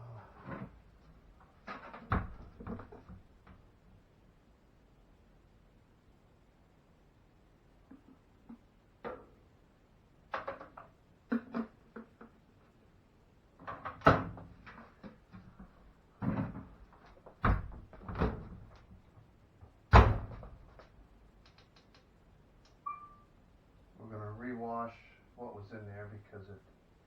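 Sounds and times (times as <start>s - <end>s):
washing machine door thuds: 17.4s - 18.7s, 19.9s - 20.6s.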